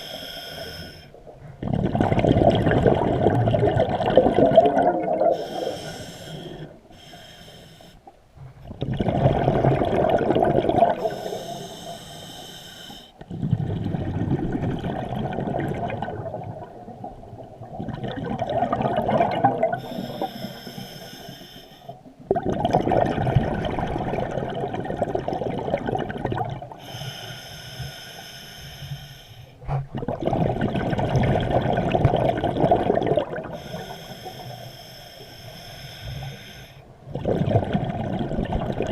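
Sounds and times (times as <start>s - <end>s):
regulator inhale hiss: 0.0s - 1.2s, 5.4s - 8.1s, 11.0s - 13.2s, 19.8s - 22.0s, 26.8s - 29.6s, 33.5s - 36.9s
exhaled bubbles rushing: 1.4s - 5.8s, 8.7s - 11.3s, 13.3s - 20.0s, 22.2s - 26.8s, 29.8s - 33.6s, 37.0s - 38.9s.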